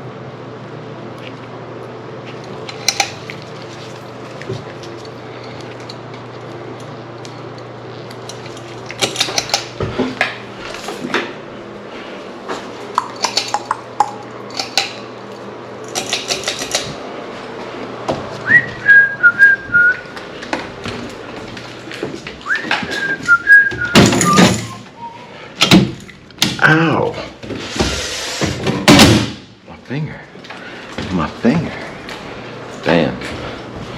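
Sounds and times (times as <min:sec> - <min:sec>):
person whistling: 0:18.4 - 0:20.1, 0:22.4 - 0:25.3.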